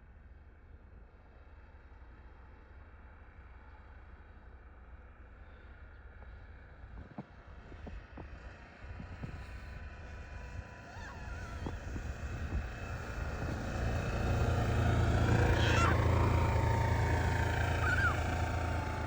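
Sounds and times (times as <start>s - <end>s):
vehicle engine approaching: 9.1s - 19.0s.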